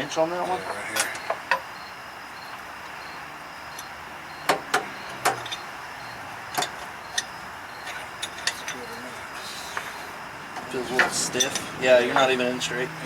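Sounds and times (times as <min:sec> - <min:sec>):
wrench and bolts clinking: 0:06.5 - 0:08.9.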